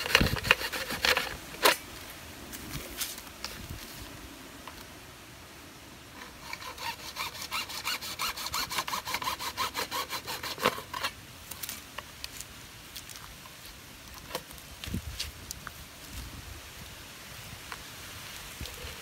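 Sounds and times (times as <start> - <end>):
hand saw cutting: 0.0 - 1.8, 6.2 - 11.2.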